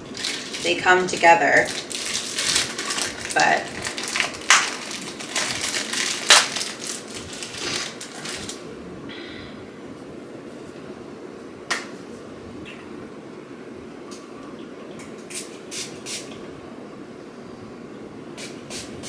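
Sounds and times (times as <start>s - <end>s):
packaging crinkling: 0.0s - 8.6s.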